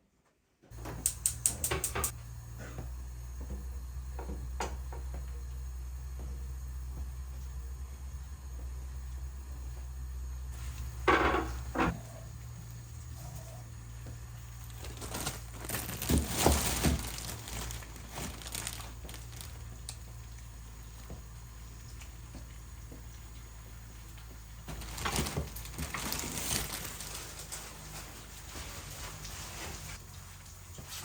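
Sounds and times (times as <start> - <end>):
low steady hum: 0.6 - 31.0
rustling crinkling handling noises: 10.5 - 11.0, 14.1 - 21.2, 23.4 - 31.0.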